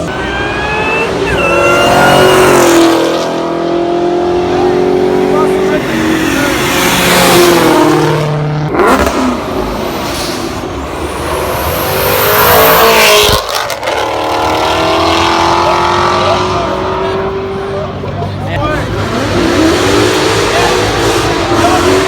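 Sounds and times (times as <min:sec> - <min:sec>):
car engines revving and accelerating: 0:00.0 - 0:22.0.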